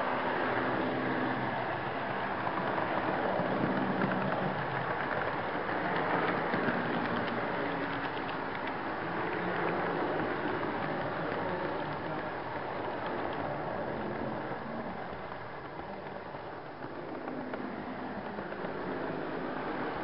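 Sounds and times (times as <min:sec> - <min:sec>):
light rapid clicking: 0:00.0 - 0:20.0
model train wheels rattling: 0:00.0 - 0:20.0.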